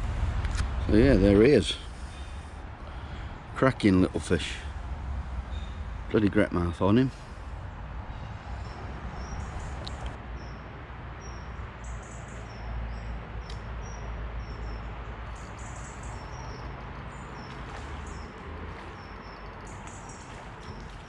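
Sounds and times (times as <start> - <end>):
steady low rumble: 0.0 - 10.2, 13.1 - 21.0
small bird chirping: 11.3 - 21.0.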